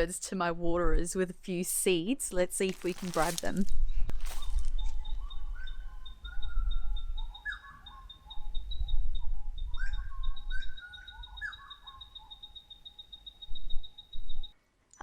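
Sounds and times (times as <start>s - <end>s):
rapid high bird chirps: 4.4s - 14.6s
whistled bird notes: 4.8s - 14.5s
short lower bird calls: 5.0s - 14.0s.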